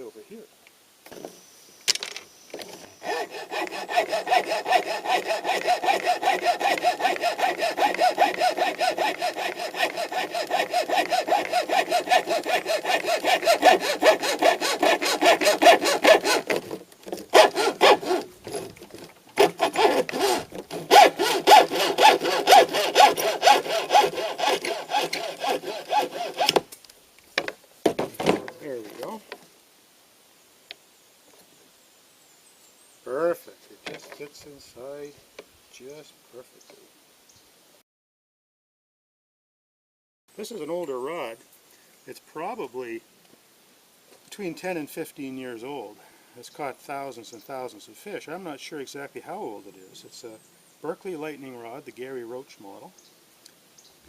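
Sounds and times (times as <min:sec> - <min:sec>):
hacksaw cutting rod: 0:02.6 - 0:18.7, 0:19.4 - 0:26.6.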